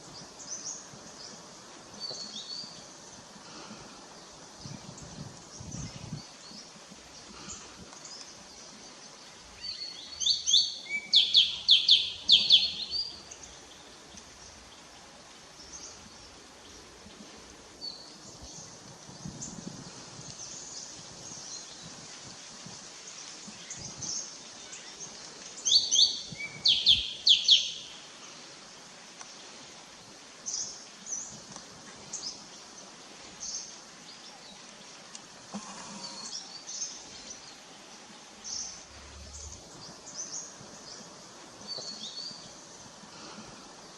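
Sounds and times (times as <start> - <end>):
faint bird chirps: 35.5 - 37.6.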